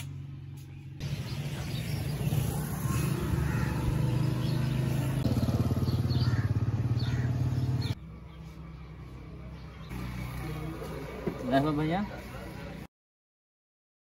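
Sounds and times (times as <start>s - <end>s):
bird chirps: 0.5s - 10.5s.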